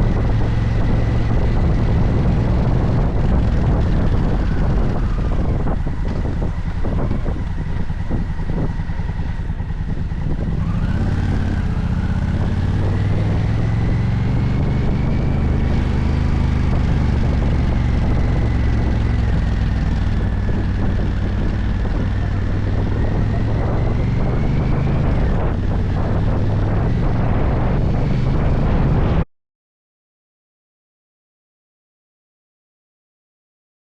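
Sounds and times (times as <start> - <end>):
motorcycle engine running: 0.0 - 29.2
wind noise on microphone: 0.0 - 29.3.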